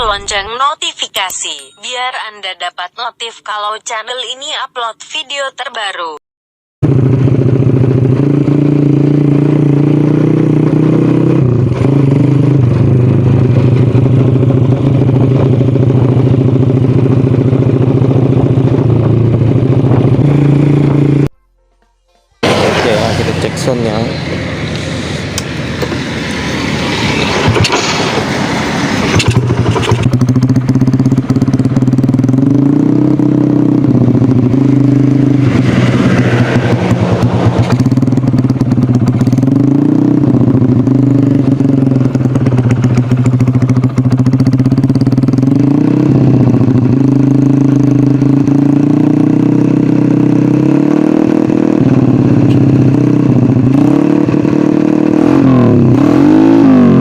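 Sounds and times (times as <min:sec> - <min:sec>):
motorcycle engine idling: 0:12.7 - 0:21.2, 0:29.3 - 0:32.8, 0:36.9 - 0:48.6.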